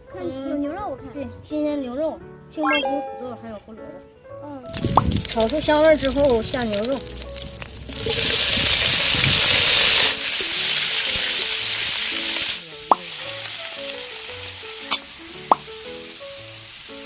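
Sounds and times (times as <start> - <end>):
meat sizzling in hot oil: 4.7 - 17.0.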